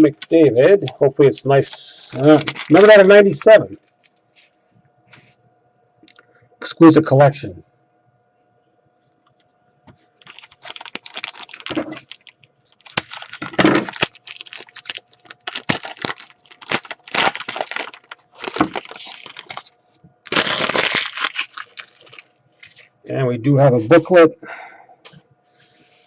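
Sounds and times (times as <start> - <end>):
wrapper crinkling: 0.0 - 0.4, 1.6 - 4.2, 10.2 - 22.9.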